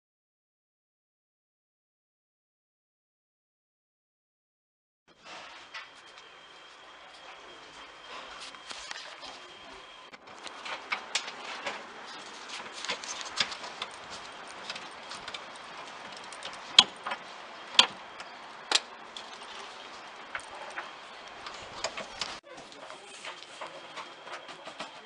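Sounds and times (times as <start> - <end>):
small clicks and clinks of objects: 10.3 - 25.0.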